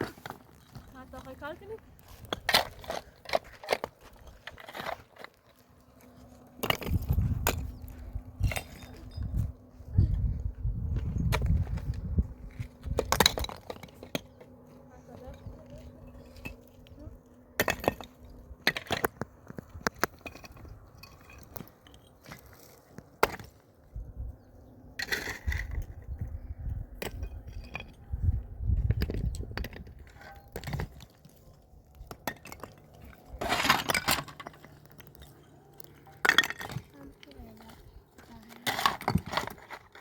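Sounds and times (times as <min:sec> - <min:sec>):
low rumble: 0:06.7 - 0:13.4
hard objects knocking and clinking: 0:32.0 - 0:37.3.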